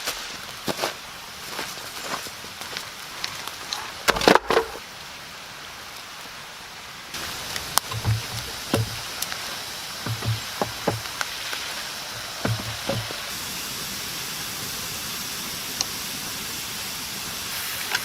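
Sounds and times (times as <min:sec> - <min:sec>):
steady hiss: 0:00.0 - 0:18.0
irregular knocks and clicks: 0:07.2 - 0:09.4, 0:10.0 - 0:13.3
dull thumps: 0:07.2 - 0:13.3.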